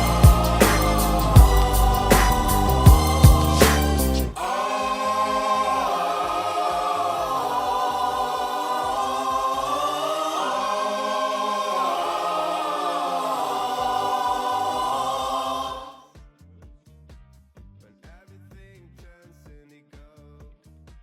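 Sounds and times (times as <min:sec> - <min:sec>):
choir singing long chords: 0:00.0 - 0:16.1.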